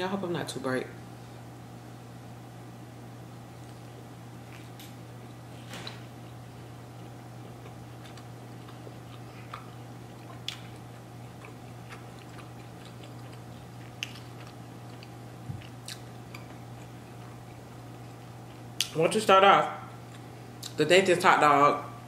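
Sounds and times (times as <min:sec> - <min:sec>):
steady low hum: 0:00.0 - 0:22.0
chewing with mouth closed: 0:06.0 - 0:19.0.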